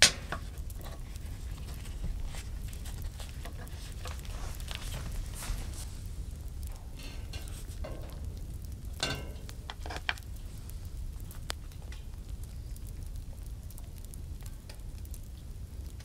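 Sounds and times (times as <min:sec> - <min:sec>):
utensil scraping and clinking on pan: 0:06.8 - 0:08.2, 0:09.0 - 0:10.2
food sizzling in a pan: 0:09.0 - 0:10.7.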